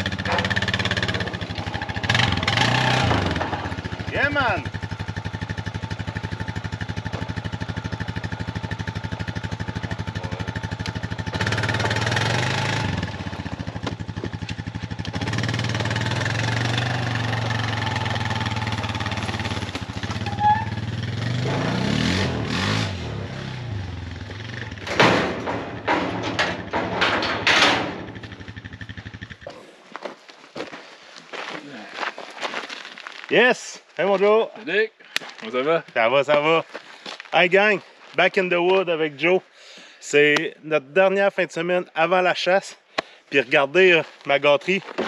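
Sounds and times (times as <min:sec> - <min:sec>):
atv engine running: 0:00.0 - 0:26.8, 0:27.6 - 0:29.5.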